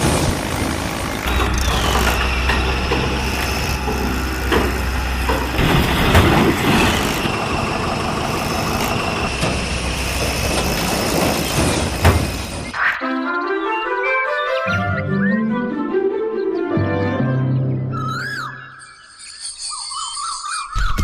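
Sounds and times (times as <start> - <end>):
small motor humming and whining: 0.0 - 12.7.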